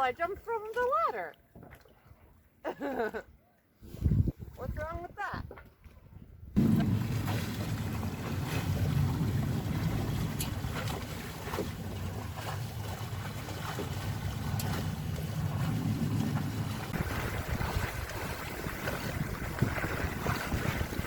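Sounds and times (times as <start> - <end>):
wind buffeting microphone: 3.8 - 21.0
water washing around boat: 6.6 - 21.0.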